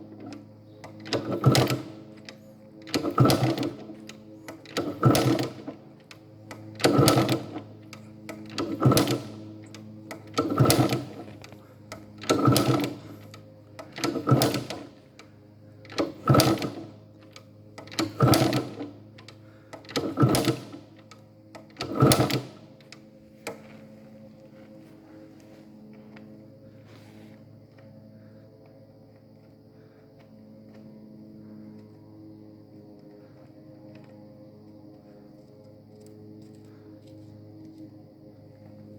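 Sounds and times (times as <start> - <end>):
two-stroke engine bursts: 0.0 - 24.0
steady low hum: 0.0 - 38.9.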